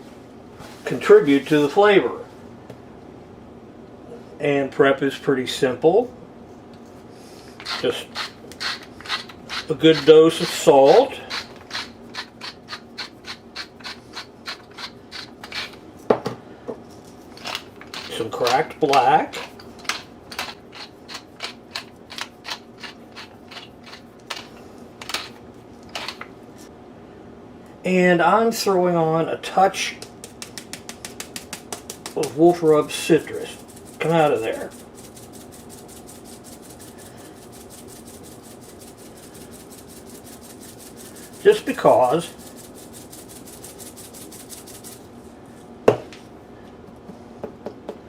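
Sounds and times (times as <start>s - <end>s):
spice shaker rattling: 7.6s - 15.8s, 17.2s - 18.6s, 19.4s - 26.2s, 30.0s - 45.1s.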